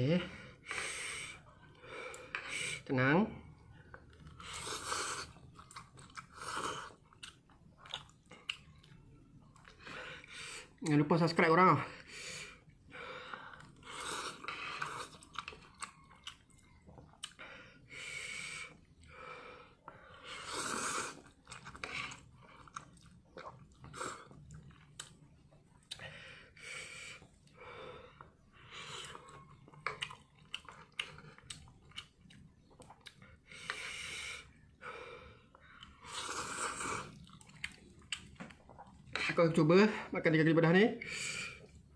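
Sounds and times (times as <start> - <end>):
chewing noises: 3.8 - 11.0, 13.2 - 17.5, 19.8 - 26.2, 28.2 - 34.6, 35.5 - 39.3
noodle slurping: 4.2 - 7.2, 13.4 - 15.8, 20.0 - 24.4, 35.8 - 39.3.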